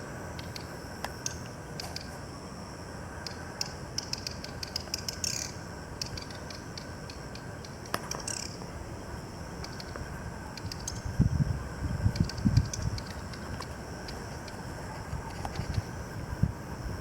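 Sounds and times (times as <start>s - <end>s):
bird clicking calls: 3.2s - 8.6s.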